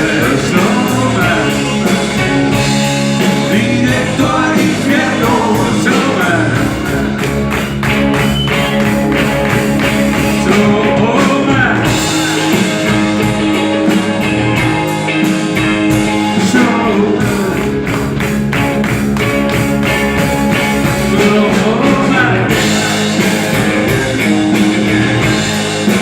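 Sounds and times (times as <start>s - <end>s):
rock band playing: 0.0s - 26.0s.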